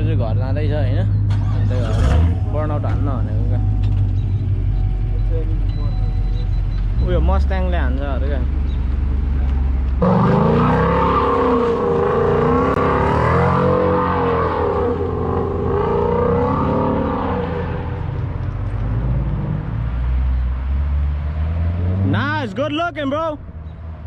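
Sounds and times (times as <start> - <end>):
car engine revving hard: 1.7 - 2.7, 10.0 - 18.0.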